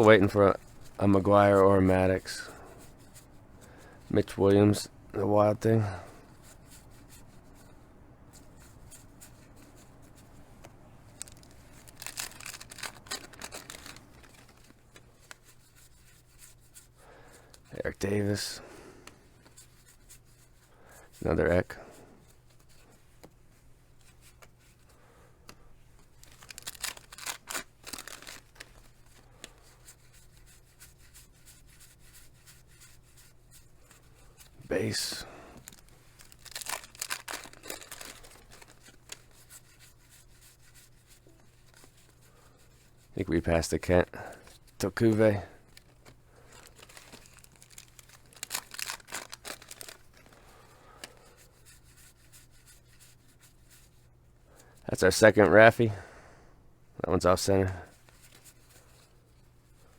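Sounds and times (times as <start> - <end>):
cards clicking and rustling: 10.6 - 16.5, 25.4 - 30.4, 33.9 - 39.9, 44.4 - 52.1
wrapper crinkling and tearing: 11.1 - 15.5, 26.2 - 29.5, 34.8 - 40.1, 44.8 - 51.3.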